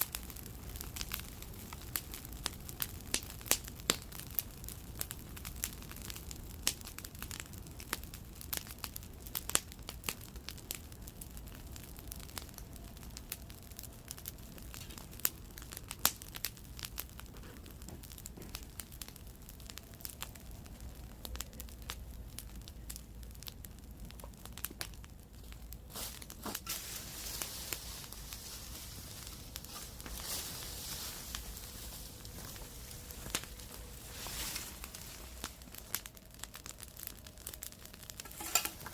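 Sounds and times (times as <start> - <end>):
campfire crackling: 0.0 - 38.9
steady hiss: 25.9 - 38.9
low rumble: 28.0 - 38.9.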